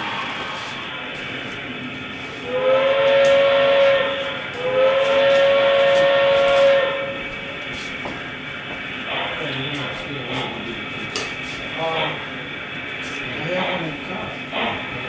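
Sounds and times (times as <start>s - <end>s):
model train steam whistle: 2.3s - 7.5s.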